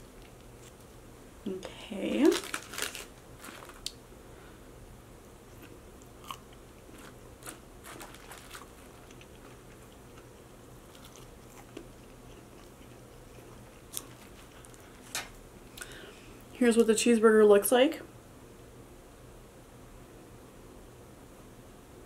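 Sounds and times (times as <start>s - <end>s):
chewing french fries: 5.5s - 15.1s.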